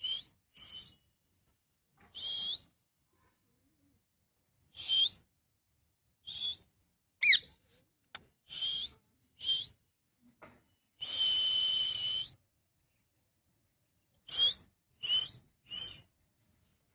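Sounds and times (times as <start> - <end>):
parrot whistling calls: 7.2 - 7.4.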